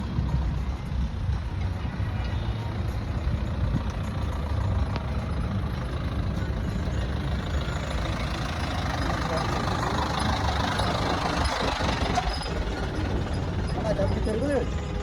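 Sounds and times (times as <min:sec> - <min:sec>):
tractor diesel engine rumbling: 0:00.0 - 0:15.0.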